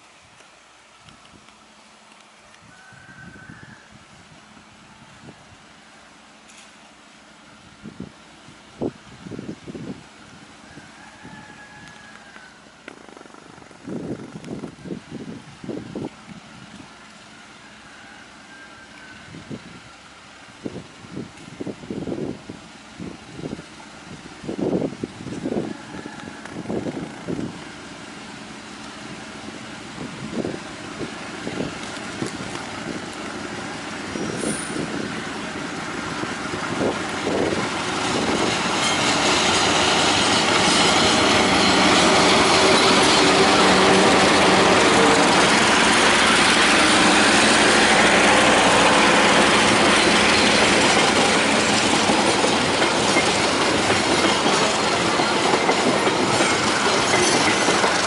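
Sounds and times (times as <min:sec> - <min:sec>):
train passing at speed: 0:00.0 - 0:58.0
steel wheels rolling on rails: 0:22.6 - 0:58.0.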